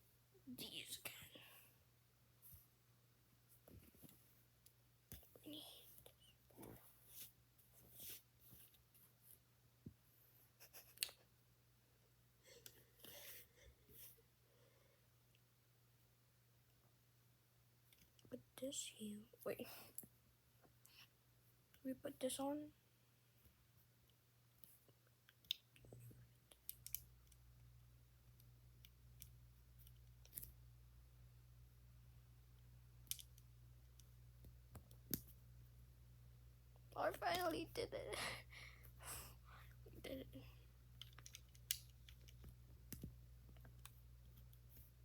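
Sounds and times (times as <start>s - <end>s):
low steady hum: 0.0s - 45.0s
plastic pieces rustling and clicking: 41.0s - 43.1s.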